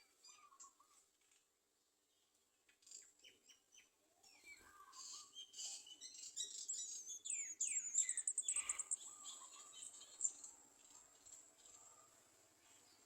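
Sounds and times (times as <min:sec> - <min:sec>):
small birds chirping: 0:00.0 - 0:01.3, 0:02.1 - 0:13.0.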